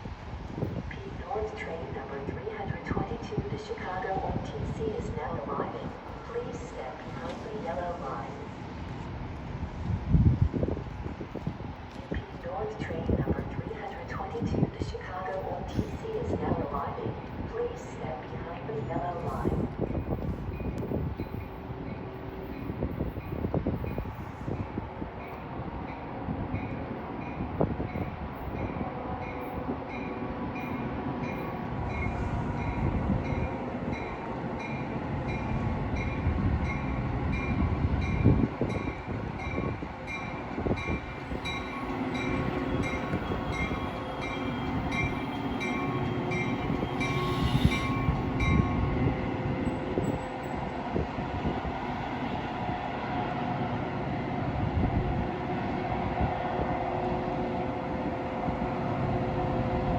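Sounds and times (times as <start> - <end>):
train cars rumbling: 0.0 - 59.9.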